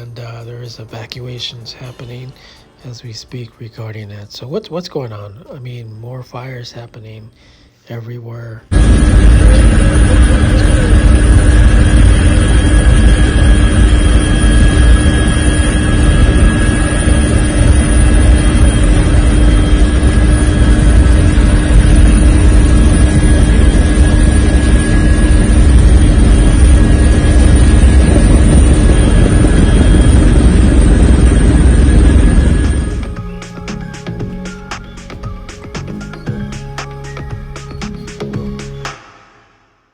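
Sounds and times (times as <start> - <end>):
aircraft engine rumble: 8.7 - 34.6
whining tones: 8.7 - 39.0.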